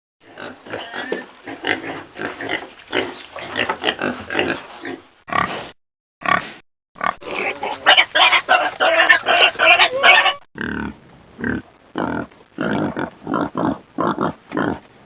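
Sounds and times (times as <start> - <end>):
pigs grunting and squealing: 0.2 - 14.8.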